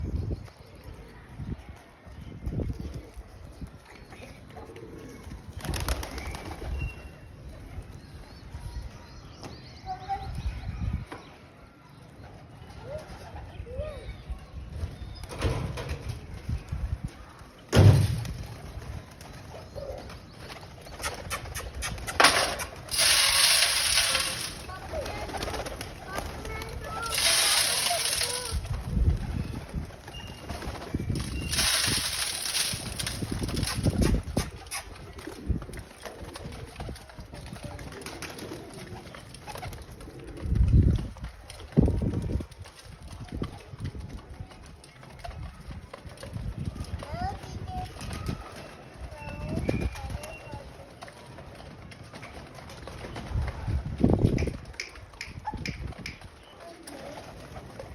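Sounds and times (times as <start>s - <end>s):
loud thump: 17.7s - 18.4s
rustling noise: 21.2s - 37.0s.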